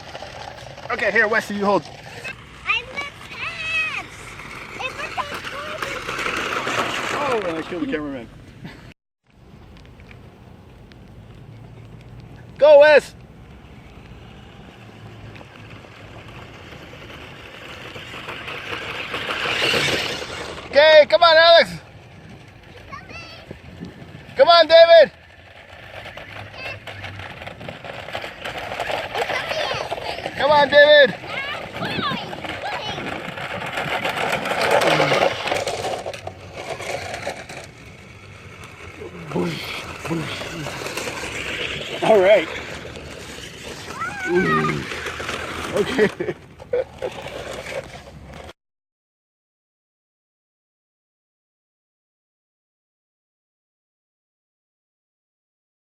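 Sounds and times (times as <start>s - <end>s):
toy truck motor and tyres hissing: 0.0s - 8.1s, 13.6s - 24.6s, 25.2s - 48.5s.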